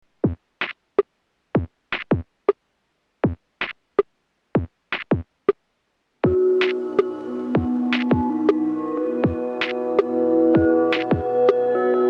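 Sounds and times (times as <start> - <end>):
drum-machine beat: 0.2 - 0.8, 1.6 - 2.3, 3.2 - 3.8, 4.6 - 5.3, 6.2 - 11.7
held synthesizer chord: 6.3 - 12.0.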